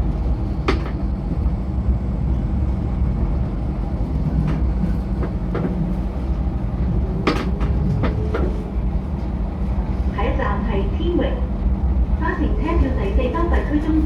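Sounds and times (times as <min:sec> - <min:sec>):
train rumbling along track: 0:00.0 - 0:14.0.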